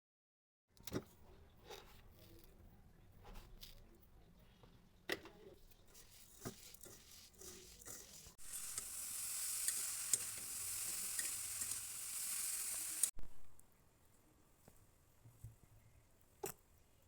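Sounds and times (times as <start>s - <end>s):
pan sizzling: 6.3s - 13.2s.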